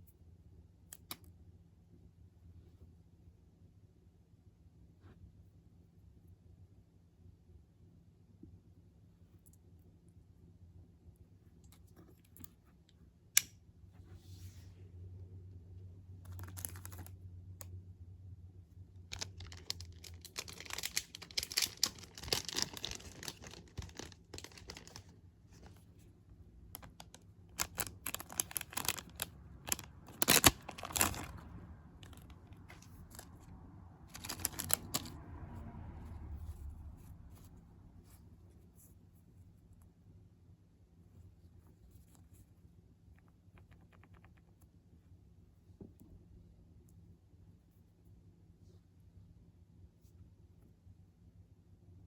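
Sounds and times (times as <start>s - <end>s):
packaging rustling and crinkling: 19.1s - 26.0s, 26.8s - 35.2s.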